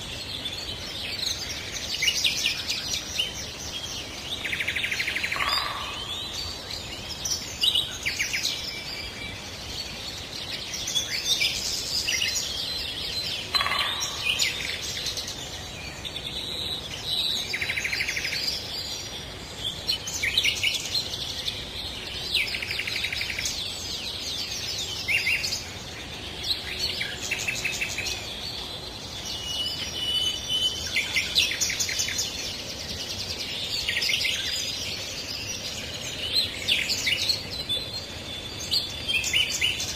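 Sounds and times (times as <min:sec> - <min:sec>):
faint background hiss: 0:00.0 - 0:39.9
songbirds chirping and trilling: 0:00.0 - 0:39.9.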